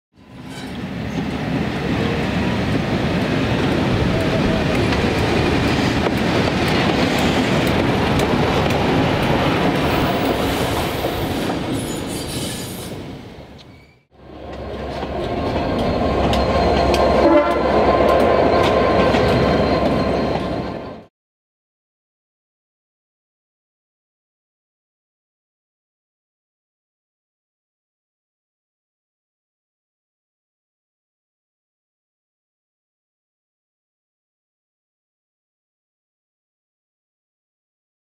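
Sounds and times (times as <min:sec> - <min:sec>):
diesel locomotive engine: 0:00.2 - 0:21.1
train wheels on rails: 0:00.2 - 0:21.1.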